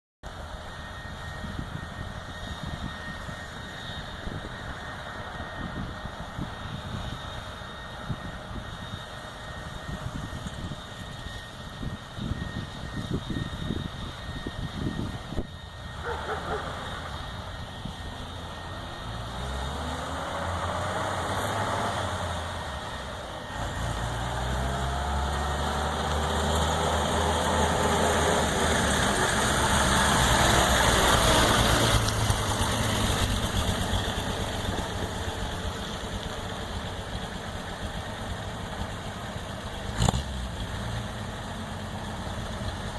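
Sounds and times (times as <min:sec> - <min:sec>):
truck engine revving: 0:15.8 - 0:42.9.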